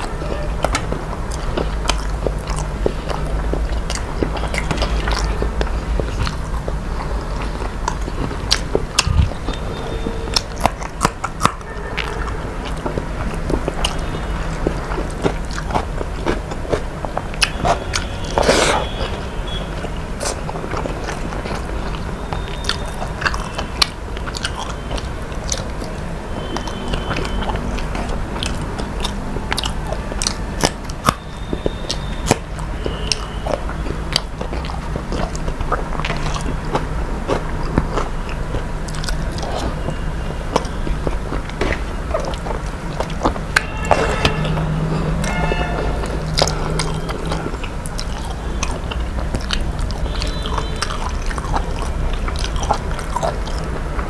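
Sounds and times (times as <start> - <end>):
food crunching: 0.0 - 54.0
mouth clicks: 0.0 - 54.0
person chewing food: 0.0 - 54.0.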